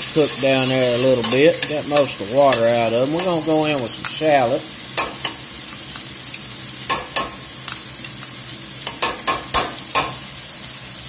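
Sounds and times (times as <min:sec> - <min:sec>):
mushrooms sizzling in oil: 0:00.0 - 0:11.0
metal tongs clinking on pot: 0:00.6 - 0:04.4, 0:06.0 - 0:10.2.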